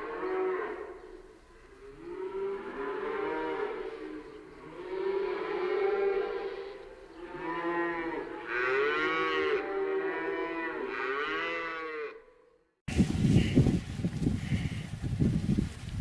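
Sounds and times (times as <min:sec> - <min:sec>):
cattle mooing: 0:01.8 - 0:12.3.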